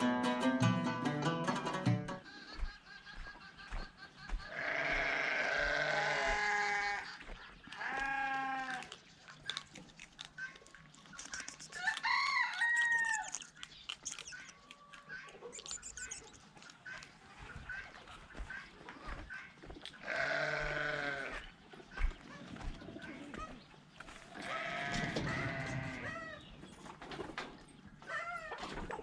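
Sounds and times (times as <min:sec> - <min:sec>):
goats bleating: 0:04.5 - 0:07.1, 0:07.8 - 0:08.9, 0:20.0 - 0:21.4, 0:24.4 - 0:26.3
rooster crowing: 0:11.8 - 0:13.4.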